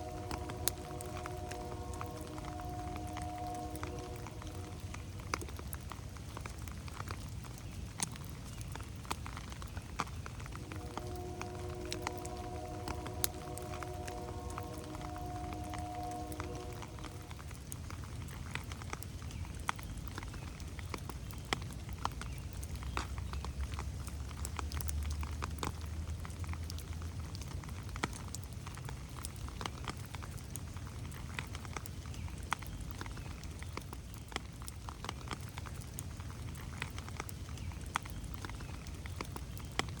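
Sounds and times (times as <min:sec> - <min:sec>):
low rumble: 0:00.0 - 0:06.5, 0:10.3 - 0:18.0
rain pattering on leaves: 0:00.0 - 0:40.0.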